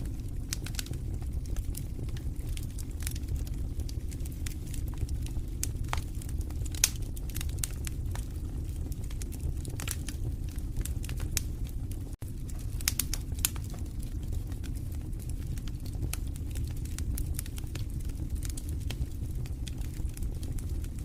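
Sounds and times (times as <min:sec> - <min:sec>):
wood fire crackling in fireplace: 0:00.0 - 0:21.0.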